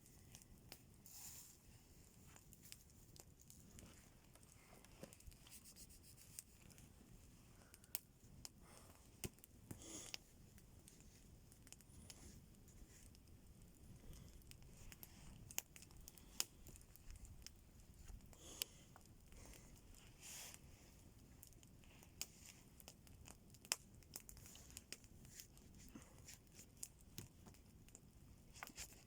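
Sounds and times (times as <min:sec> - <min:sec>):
soft rustles: 0:00.0 - 0:09.2
campfire crackling: 0:00.0 - 0:29.0.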